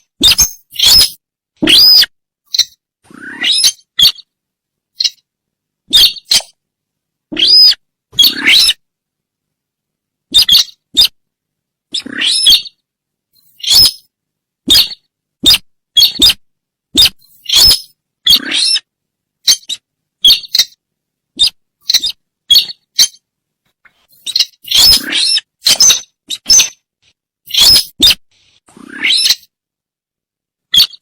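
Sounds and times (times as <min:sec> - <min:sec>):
sharp high bird calls: 0:00.0 - 0:04.3, 0:05.0 - 0:05.2, 0:05.9 - 0:06.6, 0:07.4 - 0:08.8, 0:10.3 - 0:11.2, 0:11.9 - 0:12.8, 0:13.4 - 0:14.1, 0:14.7 - 0:16.4, 0:17.0 - 0:20.8, 0:21.4 - 0:23.2, 0:24.1 - 0:26.8, 0:27.5 - 0:28.2, 0:28.9 - 0:29.5, 0:30.7 - 0:31.0.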